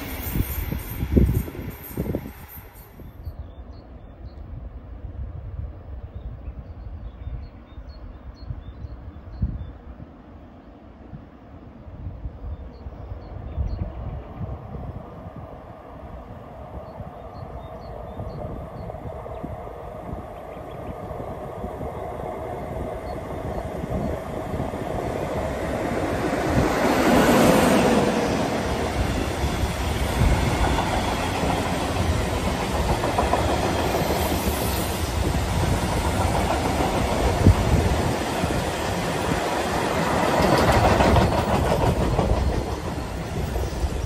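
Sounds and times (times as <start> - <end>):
train wheels rumbling on rails: 0.0 - 3.4, 16.6 - 44.0.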